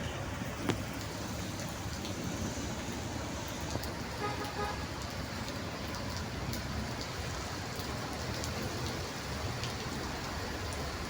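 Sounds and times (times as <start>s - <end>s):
road traffic: 0.0s - 11.0s
vehicle horn toot: 4.2s - 4.8s.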